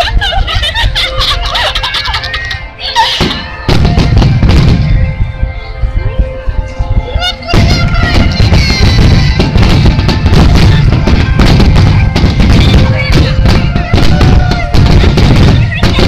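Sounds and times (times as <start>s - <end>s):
music playing: 0.0s - 16.0s
fireworks shell bursts and booms: 3.2s - 5.1s, 7.5s - 16.0s.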